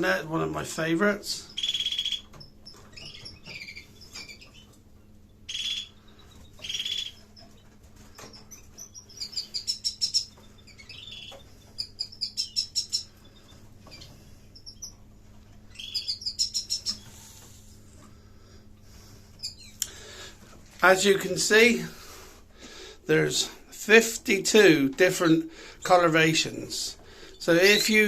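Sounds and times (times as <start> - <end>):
canary trilled song: 1.4 - 17.2, 19.4 - 19.9
canary chirps: 1.4 - 17.9, 19.0 - 20.1, 25.8 - 28.0.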